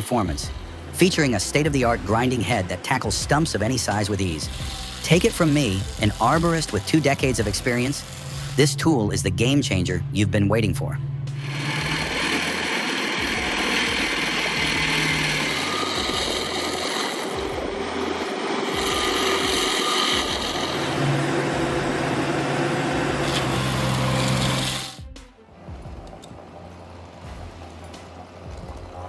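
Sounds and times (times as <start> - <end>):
harsh grinding noise: 0.0 - 29.0
stump grinder engine droning: 0.4 - 8.7, 11.3 - 25.0.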